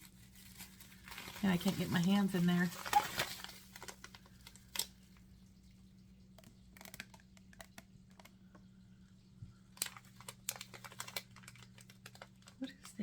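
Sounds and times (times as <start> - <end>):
low steady hum: 0.0 - 13.0
packaging clicks and taps: 6.4 - 8.4.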